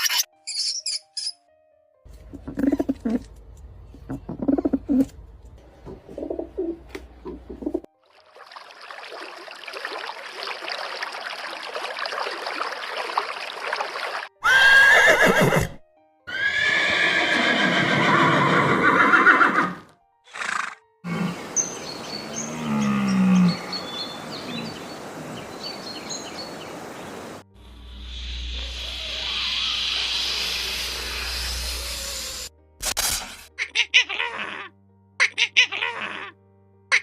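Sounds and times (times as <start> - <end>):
horses neighing and whinnying: 14.4 - 21.4.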